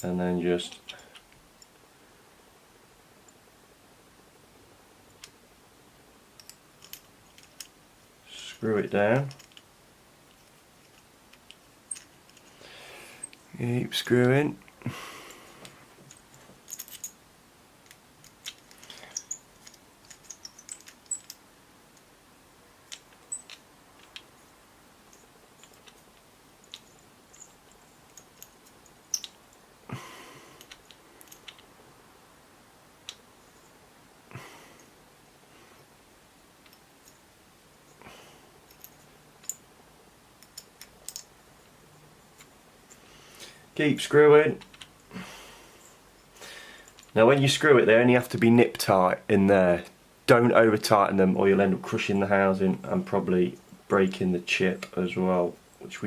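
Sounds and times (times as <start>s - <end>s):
allen key clicking on screws: 6.4s - 7.8s, 9.3s - 9.7s, 10.3s - 12.6s, 17.8s - 21.4s, 22.8s - 24.3s, 25.1s - 29.5s, 30.6s - 31.7s, 38.7s - 39.6s, 40.4s - 41.3s
soft rustle: 33.0s - 47.8s.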